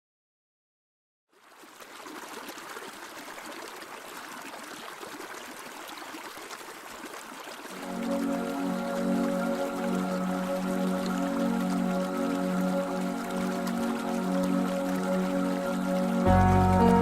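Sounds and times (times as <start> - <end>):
trickling water: 1.3 - 17.0
water dripping: 7.1 - 17.0
soft music with held notes: 7.8 - 17.0.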